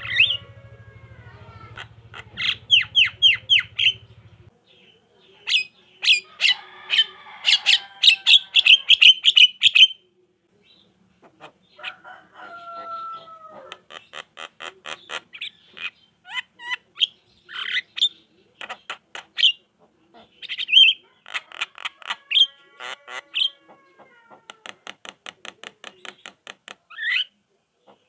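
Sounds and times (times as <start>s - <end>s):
bird harsh squawking: 0.0s - 4.3s
bird chattering song: 0.0s - 10.0s, 12.8s - 22.6s, 25.2s - 28.0s.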